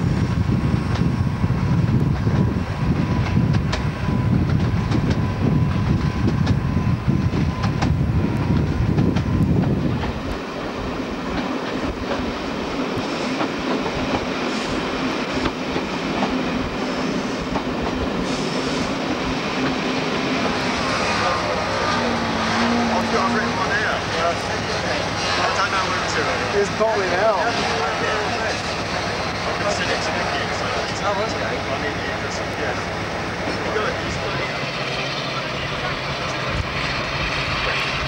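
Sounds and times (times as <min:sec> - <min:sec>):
train rumbling from aboard coach: 0:00.0 - 0:38.0
diesel engine drone: 0:20.0 - 0:28.7.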